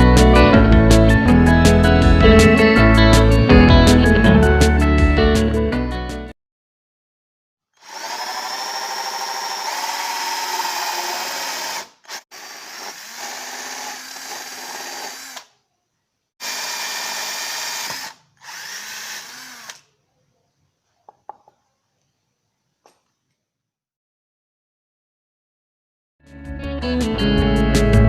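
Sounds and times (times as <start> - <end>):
small motor whining: 7.8 - 15.5, 16.4 - 19.9.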